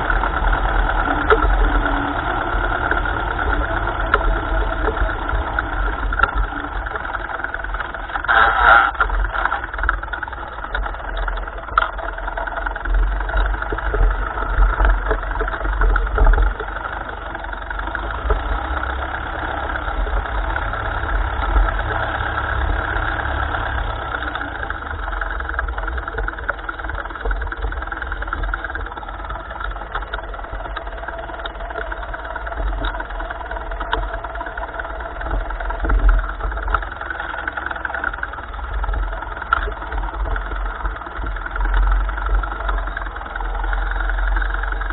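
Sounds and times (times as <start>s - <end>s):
tractor engine running: 0.0s - 44.9s.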